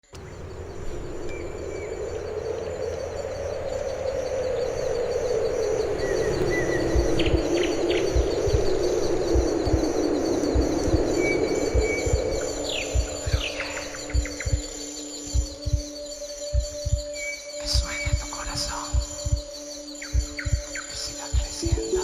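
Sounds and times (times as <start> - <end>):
low sustained drone: 0.0 - 22.0
bird chirps: 0.1 - 22.0
pulsing insect trill: 0.3 - 22.0
soft low thumps: 6.4 - 14.7, 15.3 - 17.2, 17.8 - 22.0.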